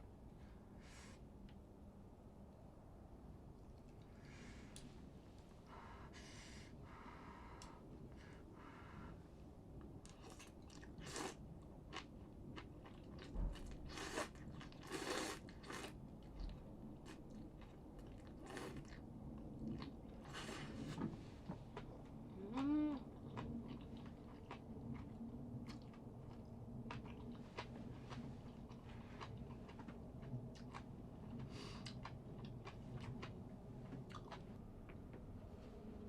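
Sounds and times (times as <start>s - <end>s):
chewing and crunching food: 9.8s - 35.1s.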